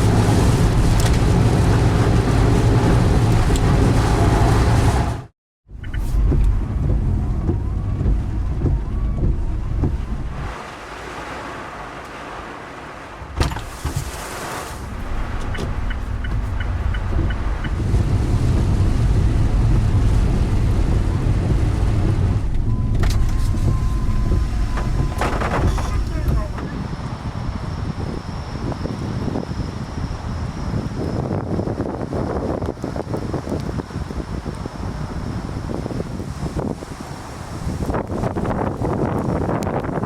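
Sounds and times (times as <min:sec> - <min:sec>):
car engine and road noise: 0:00.0 - 0:40.0.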